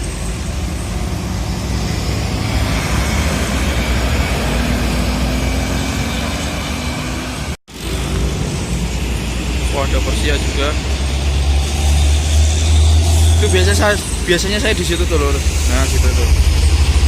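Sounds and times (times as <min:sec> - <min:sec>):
bus and vehicle engines: 0:00.0 - 0:17.0
road hiss: 0:06.0 - 0:17.0.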